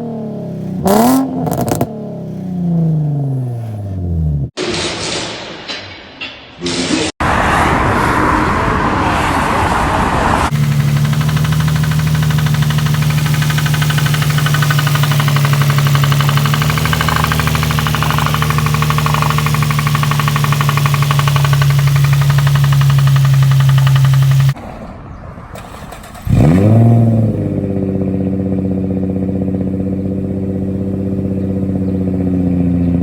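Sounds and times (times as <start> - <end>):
loud rushing noise: 7.2 - 15.3
engine running steadily: 10.5 - 24.6.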